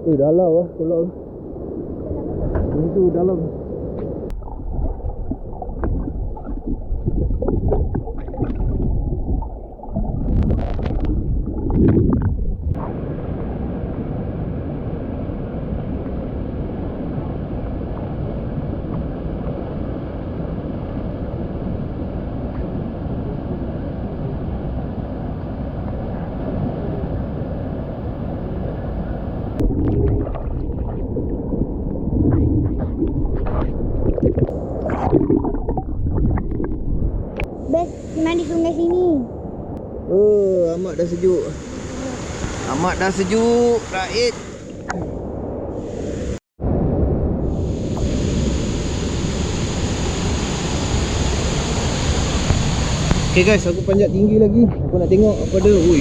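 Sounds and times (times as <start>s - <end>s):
underwater river rumble: 0.0s - 56.0s
underwater bubbling: 1.2s - 14.6s, 28.7s - 40.1s
underwater knocks: 4.0s - 12.8s.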